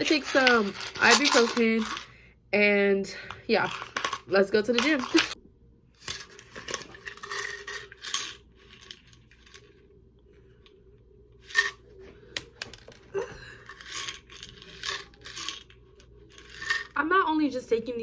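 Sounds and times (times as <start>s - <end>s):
tablets rattling in bottle: 0.0s - 2.2s, 3.5s - 5.4s, 6.0s - 9.8s, 12.6s - 17.0s.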